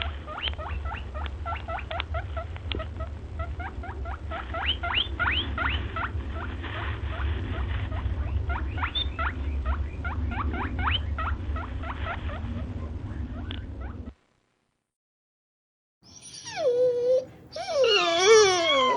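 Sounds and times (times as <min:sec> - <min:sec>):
steady low rumble: 0:00.0 - 0:14.1.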